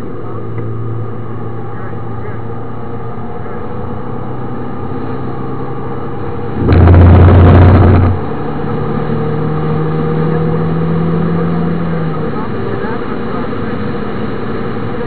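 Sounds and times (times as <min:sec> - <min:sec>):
car engine accelerating: 0:00.0 - 0:14.9
loud rough rumble: 0:00.0 - 0:15.0.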